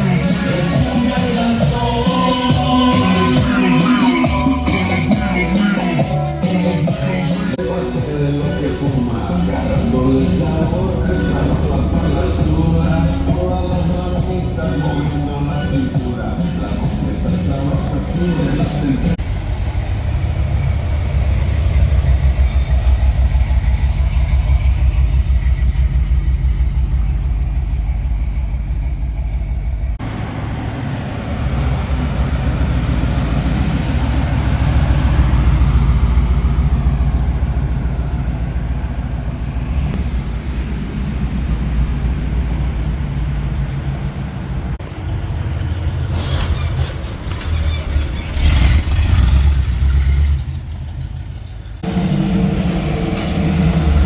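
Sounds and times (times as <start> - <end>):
pulsing exhaust beat: 0.0 - 30.0, 51.7 - 54.0
deep engine rumble: 0.0 - 54.0.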